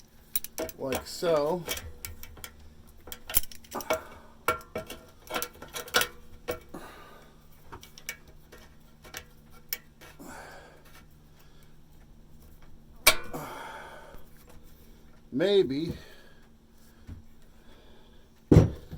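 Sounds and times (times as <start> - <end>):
hand tools clinking on metal pipe: 0.3 - 6.8, 13.0 - 13.4.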